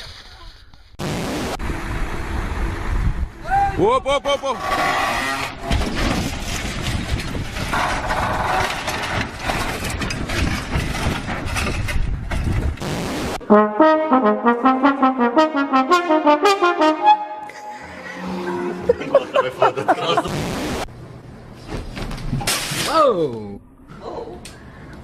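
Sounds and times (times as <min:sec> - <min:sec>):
brass tune with quick notes: 0:13.4 - 0:19.3.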